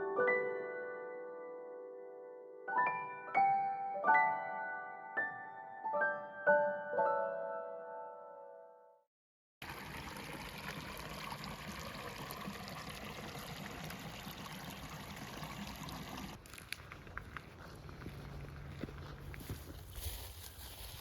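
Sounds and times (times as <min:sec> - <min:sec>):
piano music: 0:00.0 - 0:09.0
stream trickling: 0:09.6 - 0:21.0.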